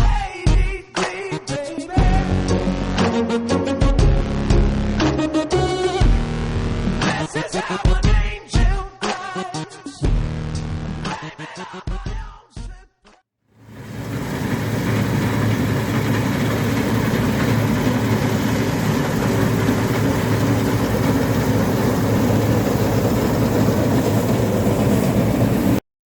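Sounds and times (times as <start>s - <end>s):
heavy diesel engine droning: 13.6s - 25.8s.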